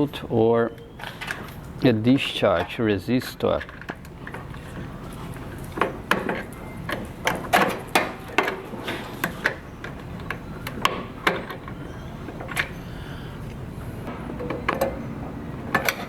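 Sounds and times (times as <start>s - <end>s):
tools clicking and knocking on metal: 3.4s - 12.8s.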